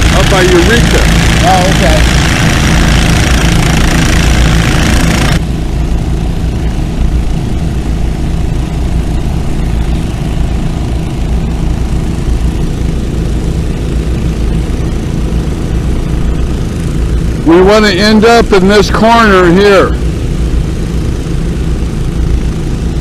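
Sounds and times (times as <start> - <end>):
gasoline water pumps running: 0.0 - 23.0.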